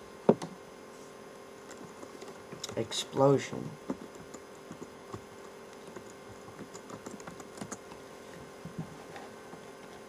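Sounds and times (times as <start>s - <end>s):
faint steady hum: 0.0s - 10.0s
typing on a keyboard: 3.9s - 7.9s.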